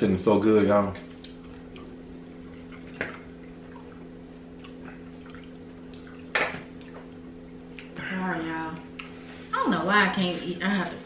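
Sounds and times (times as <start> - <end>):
steady low hum: 0.0 - 11.0
chewing fried chicken: 1.0 - 6.2.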